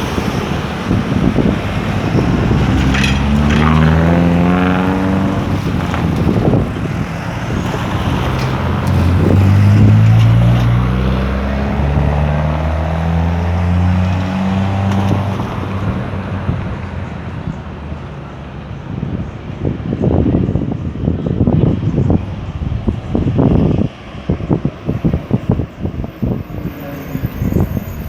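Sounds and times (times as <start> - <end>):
vehicle engines accelerating past: 0.0 - 19.4
steady road noise: 0.0 - 28.0.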